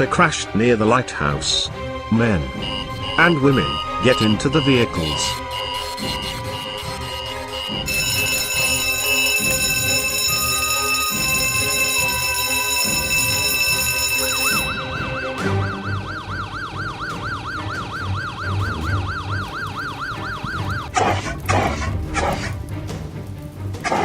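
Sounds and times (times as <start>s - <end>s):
fire engine siren yelping: 2.5s - 22.6s
steady held tones: 2.6s - 20.9s.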